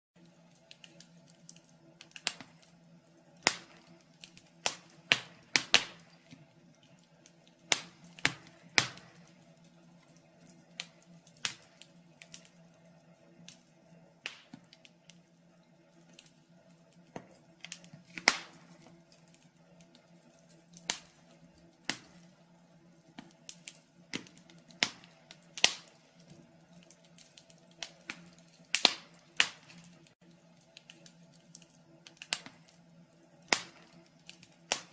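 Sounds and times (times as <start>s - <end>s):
faint steady hum: 0.2s - 34.9s
wood fire crackling: 0.2s - 34.9s.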